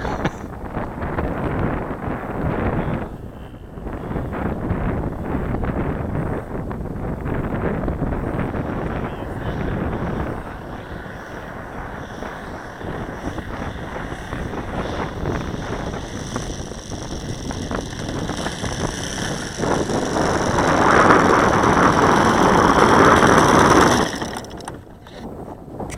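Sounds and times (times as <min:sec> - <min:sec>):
model plane engine running: 0:07.0 - 0:25.2.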